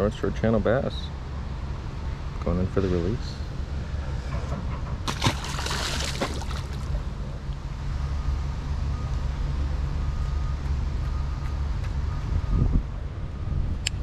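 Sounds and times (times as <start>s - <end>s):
water splashing: 5.1s - 7.1s.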